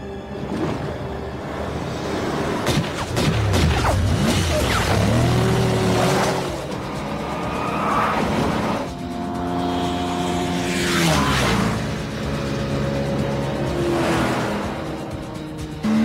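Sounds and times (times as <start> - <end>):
chase music: 0.0 - 16.0
car engine revving: 2.2 - 16.0.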